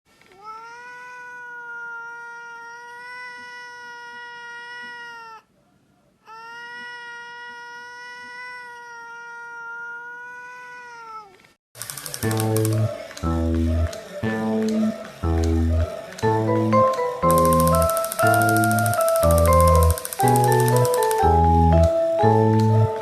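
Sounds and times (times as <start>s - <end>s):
cat yowling: 0.3s - 5.5s, 6.3s - 11.4s.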